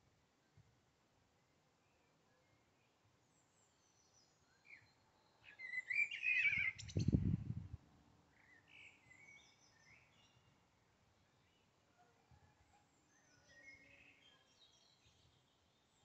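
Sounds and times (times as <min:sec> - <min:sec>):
small birds chirping: 0:01.9 - 0:07.4, 0:13.0 - 0:16.0.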